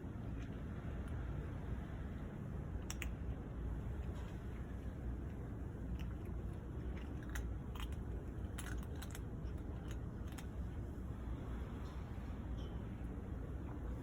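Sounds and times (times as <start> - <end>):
steady low rumble: 0.0 - 14.0
kitten chewing clicks: 2.7 - 11.0.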